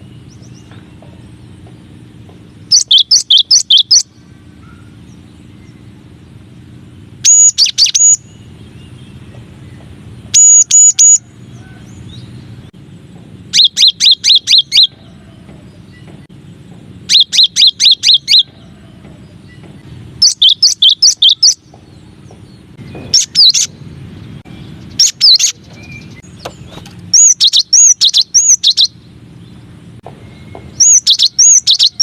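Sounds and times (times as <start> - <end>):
bird whistling song: 2.6 - 5.9, 7.1 - 12.5, 13.5 - 16.2, 17.0 - 18.8, 19.4 - 32.0.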